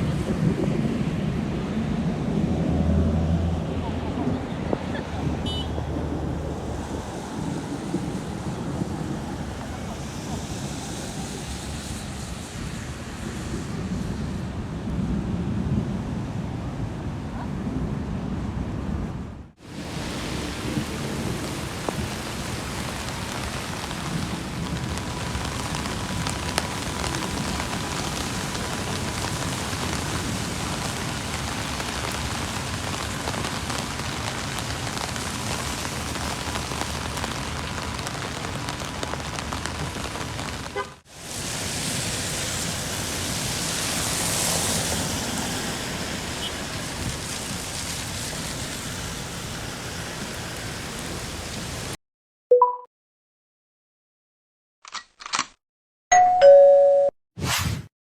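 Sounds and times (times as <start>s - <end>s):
rain falling steadily: 0.0s - 17.0s, 19.5s - 52.0s
raindrops ticking on surfaces: 19.7s - 52.0s.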